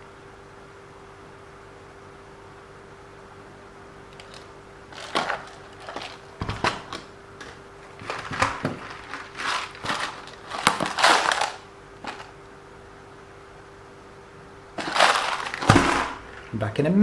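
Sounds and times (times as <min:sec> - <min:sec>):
small hard parts clattering: 0:04.1 - 0:12.3, 0:14.8 - 0:16.6.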